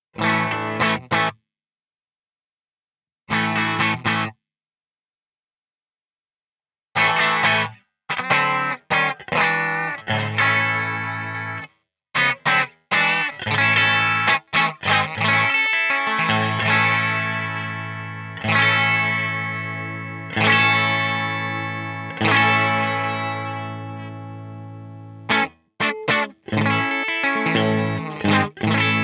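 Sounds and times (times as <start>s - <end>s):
overdriven electric guitar chords: 7.0s - 29.0s.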